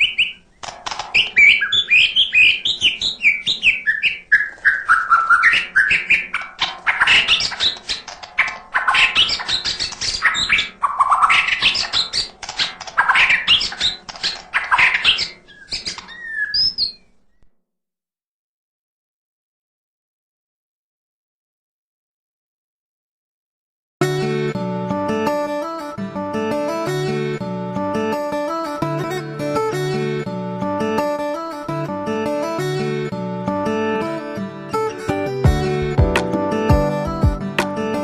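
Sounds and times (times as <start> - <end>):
bird singing varied song: 0.0 - 17.5.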